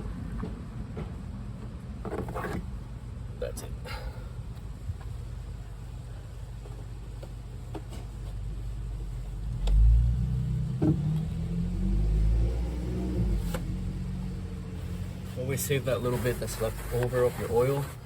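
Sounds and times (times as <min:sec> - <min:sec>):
vehicle engine rumble: 0:04.4 - 0:16.3.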